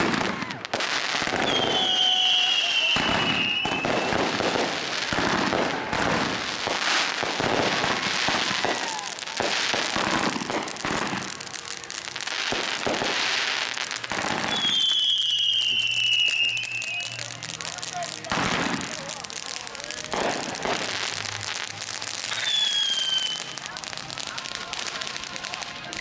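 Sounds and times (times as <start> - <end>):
fireworks banging and crackling: 0.0 - 26.0
high firework whistle: 1.2 - 4.6, 14.2 - 17.4, 22.2 - 23.8.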